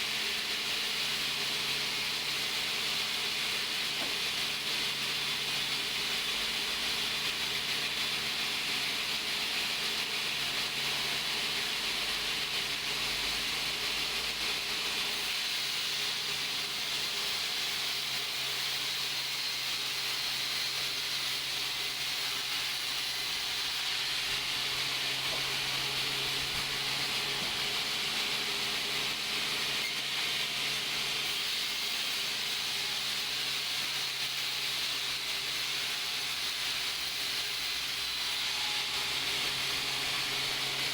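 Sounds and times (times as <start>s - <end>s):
sawmill machinery hissing: 20.6s - 31.6s.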